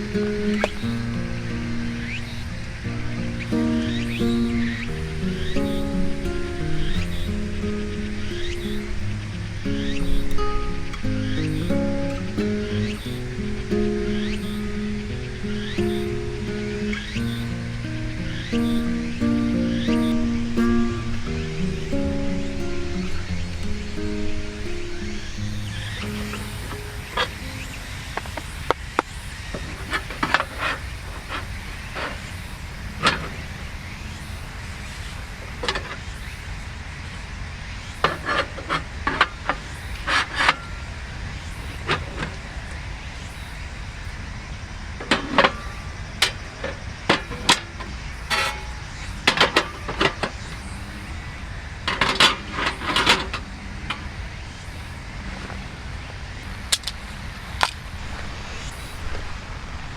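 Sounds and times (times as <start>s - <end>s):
camp utensils clinking: 48.3s - 50.2s.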